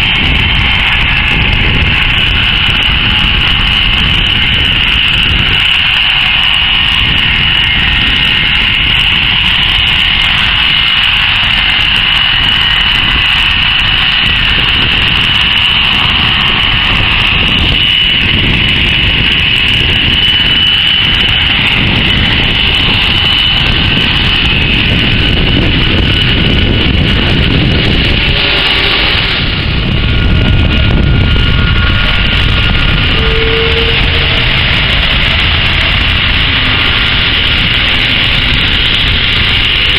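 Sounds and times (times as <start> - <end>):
jet engines rumbling and whining: 0.0 - 39.9.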